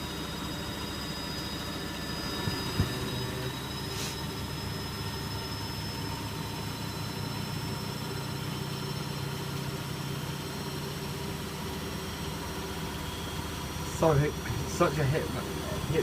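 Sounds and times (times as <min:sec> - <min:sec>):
washing machine drum spinning: 0:02.4 - 0:03.3.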